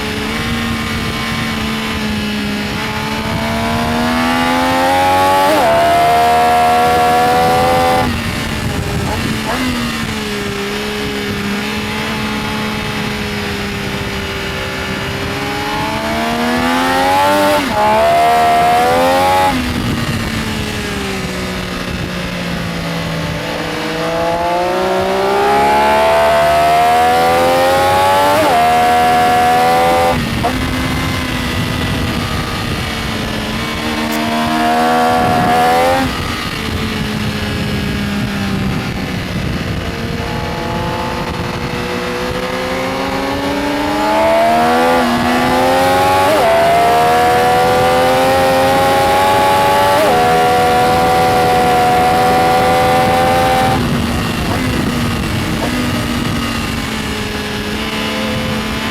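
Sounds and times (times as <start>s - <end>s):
motorcycle engine revving through gears: 0.0s - 58.9s.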